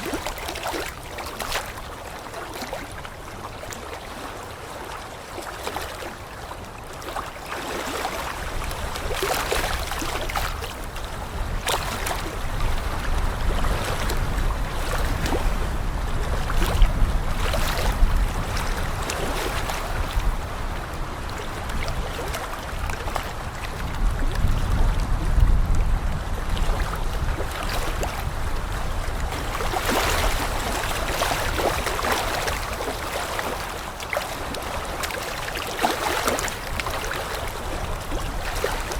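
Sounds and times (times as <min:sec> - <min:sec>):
wind gusts on microphone: 0:07.9 - 0:38.9.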